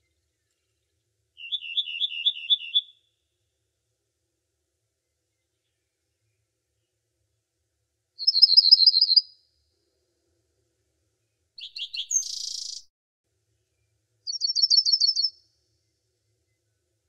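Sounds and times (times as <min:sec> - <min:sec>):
songbird fast trill: 0:01.4 - 0:03.0, 0:08.2 - 0:09.3, 0:11.6 - 0:12.9, 0:14.3 - 0:15.4.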